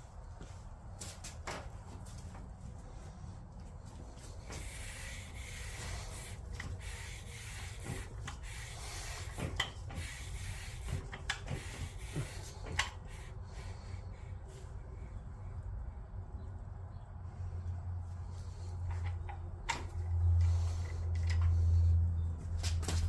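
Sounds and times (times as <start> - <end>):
hands rubbing and scraping metal parts: 3.0 - 13.8.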